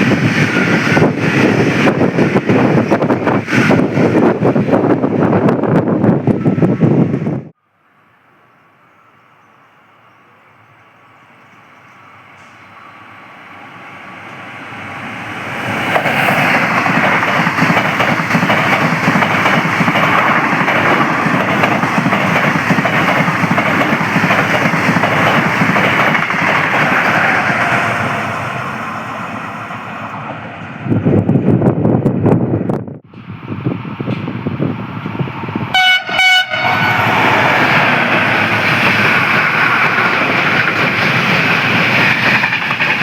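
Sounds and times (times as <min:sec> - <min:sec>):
train passing with wheel-on-rail rumble: 0:00.0 - 0:43.0.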